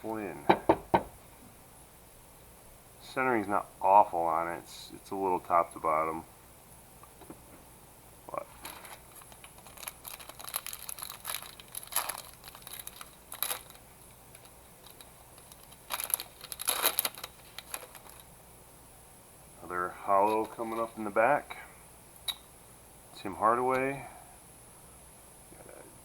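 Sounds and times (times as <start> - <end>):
cards rustling: 8.4 - 18.3
plastic wrapper crinkling and tearing: 8.5 - 18.3.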